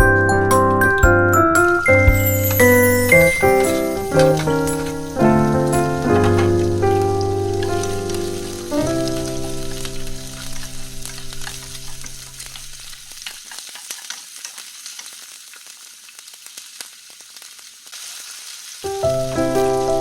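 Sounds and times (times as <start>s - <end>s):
background music: 0.0s - 11.3s, 18.9s - 20.0s
food sizzling in a frying pan: 1.4s - 20.0s.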